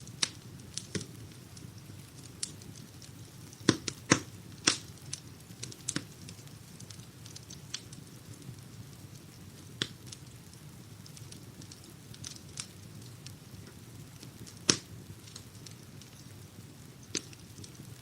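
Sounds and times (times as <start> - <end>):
low rumble of burning logs: 0.0 - 18.0
wood fire crackling and popping: 0.0 - 18.0.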